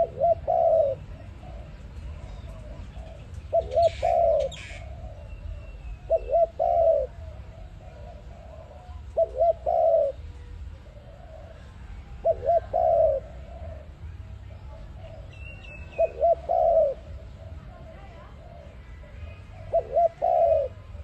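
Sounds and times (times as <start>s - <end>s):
dove cooing: 0.0s - 21.0s.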